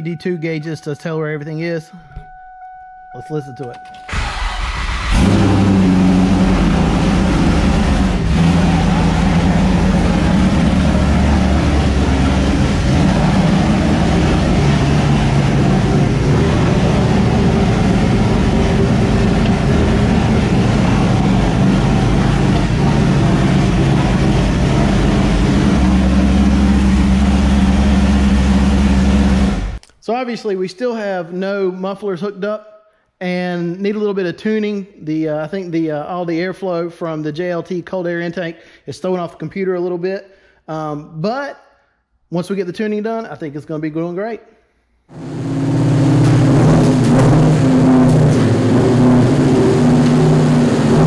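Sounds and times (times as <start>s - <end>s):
engine idling loudly: 4.1s - 29.8s, 45.1s - 51.0s.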